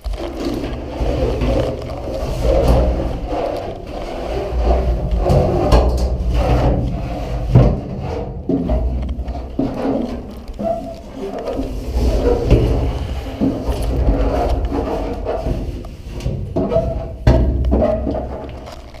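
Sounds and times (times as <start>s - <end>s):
rubbing and scraping inside metal tank: 0.0s - 19.0s
knocks and thumps on tank: 4.5s - 10.7s, 11.9s - 18.7s.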